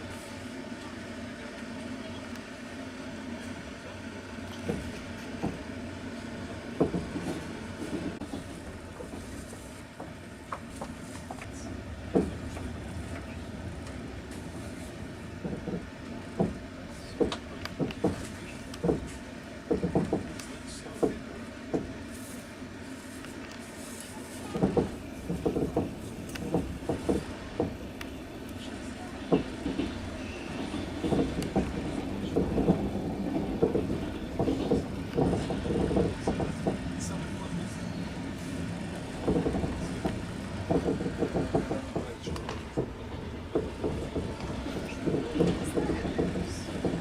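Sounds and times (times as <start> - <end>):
train carriage rumble: 0.0 - 47.0
wheels clicking and knocking: 24.6 - 28.6, 29.3 - 37.5, 38.4 - 47.0.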